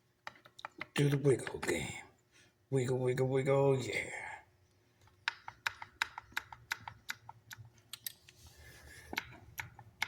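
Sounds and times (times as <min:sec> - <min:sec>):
small metal clicks and taps: 0:00.2 - 0:01.8, 0:05.0 - 0:08.4.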